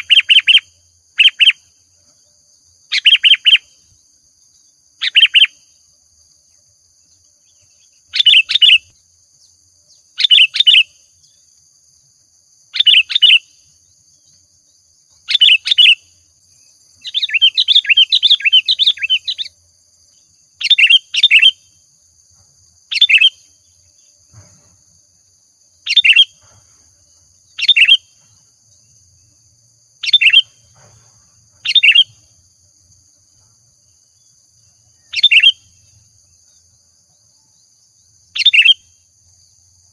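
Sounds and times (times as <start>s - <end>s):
bulbul singing: 0.0s - 1.8s, 2.9s - 5.8s, 7.1s - 11.5s, 12.6s - 21.8s, 22.9s - 24.3s, 25.8s - 26.6s, 27.5s - 29.0s, 30.0s - 30.8s, 31.6s - 32.4s, 33.8s - 39.1s.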